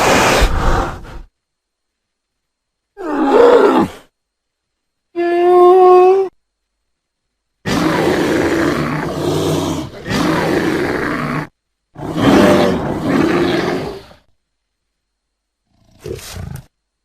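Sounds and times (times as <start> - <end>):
bear roaring: 3.0 - 4.1, 7.6 - 14.2.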